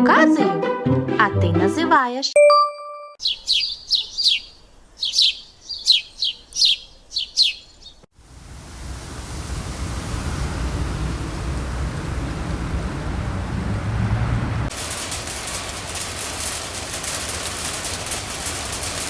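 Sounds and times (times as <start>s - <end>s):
bird chirping: 3.2s - 8.1s
steady rushing noise: 8.2s - 19.0s.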